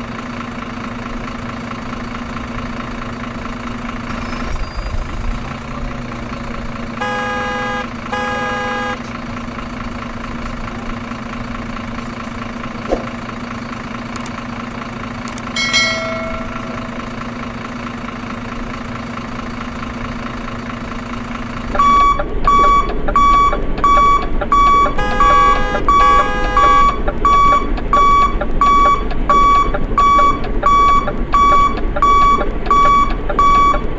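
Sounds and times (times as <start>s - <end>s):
rapid alarm beeping: 7.0s - 9.0s, 15.6s - 17.2s, 21.8s - 33.9s
short beeps: 21.8s - 33.9s.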